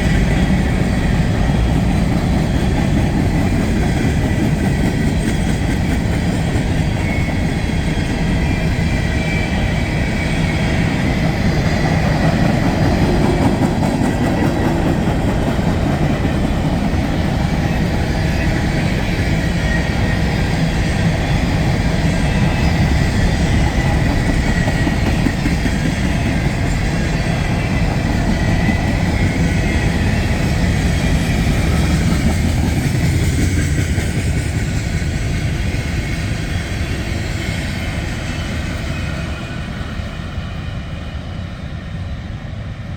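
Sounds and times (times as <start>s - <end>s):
freight train rolling past: 0.0s - 42.9s
wheels clacking over rails: 9.9s - 36.0s.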